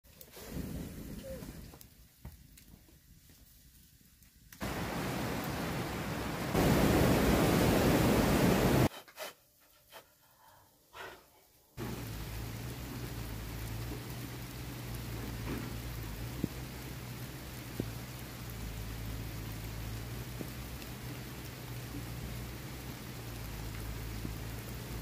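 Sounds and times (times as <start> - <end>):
rushing water hiss: 0.1 - 2.2, 4.6 - 9.3, 11.8 - 25.0
rain: 0.1 - 8.9, 11.0 - 25.0
low hum: 11.8 - 25.0.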